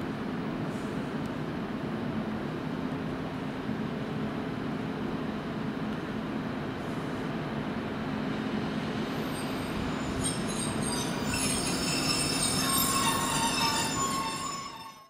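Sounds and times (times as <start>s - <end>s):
train low running noise: 0.0s - 15.0s
high metallic squeal: 9.1s - 15.0s.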